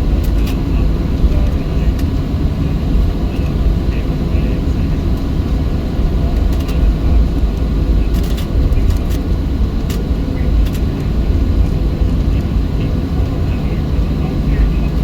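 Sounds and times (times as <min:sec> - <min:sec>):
jet engine rumble in cabin: 0:00.0 - 0:15.0.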